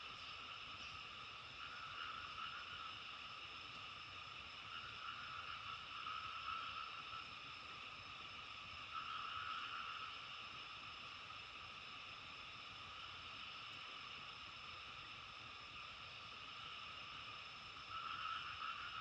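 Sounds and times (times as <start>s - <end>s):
chorus of distant calling animals: 0.1s - 7.7s, 8.8s - 10.5s, 16.4s - 19.0s.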